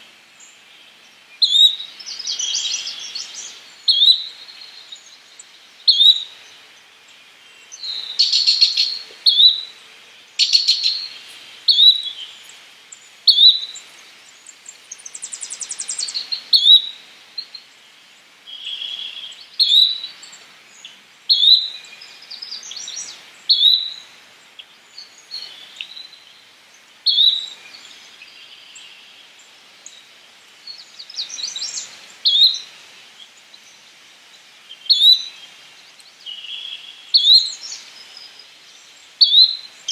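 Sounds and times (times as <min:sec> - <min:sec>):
bird chirps: 0:07.6 - 0:09.7, 0:10.4 - 0:13.8.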